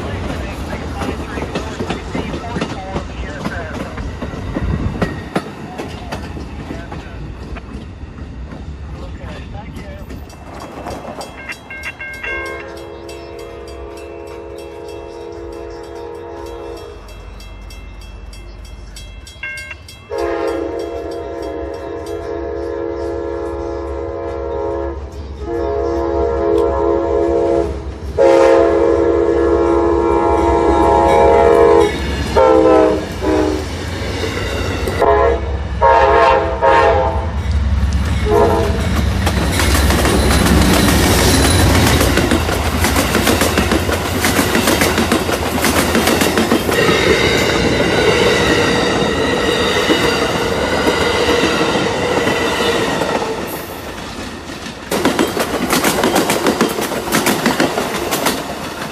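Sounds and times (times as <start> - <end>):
passing train rumble: 0.0 - 58.9
train air horn blasts: 12.3 - 17.0, 20.1 - 33.7, 35.0 - 37.3, 38.2 - 38.9, 46.8 - 53.4.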